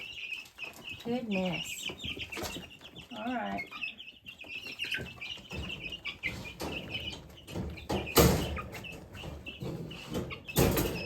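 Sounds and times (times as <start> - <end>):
chickens clucking and chirping: 0.0 - 11.0.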